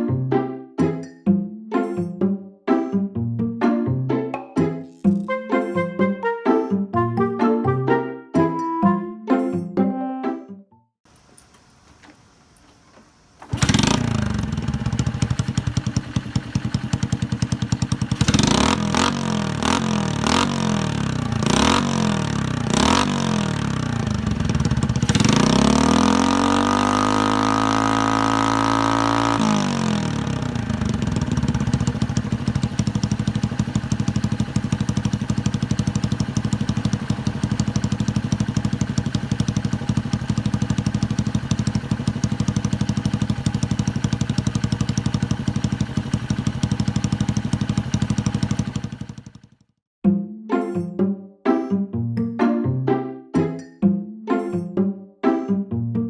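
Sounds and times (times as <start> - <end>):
motorcycle engine revving and idling: 11.1 - 49.8.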